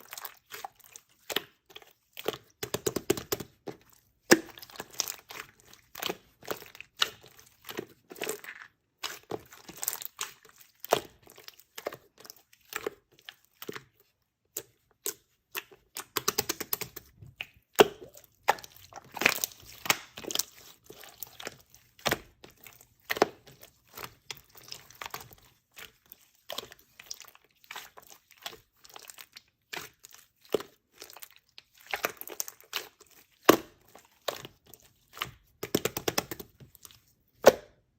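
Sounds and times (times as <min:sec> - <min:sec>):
slime crackling and popping: 0:14.7 - 0:37.5.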